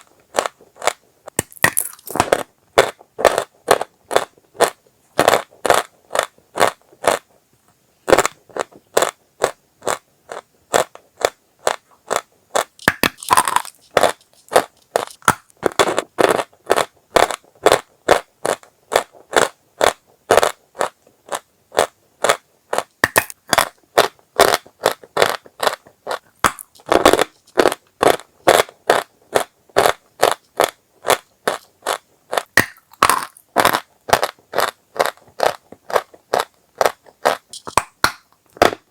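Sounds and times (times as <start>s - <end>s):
dry chalk crunching: 0.0s - 7.2s.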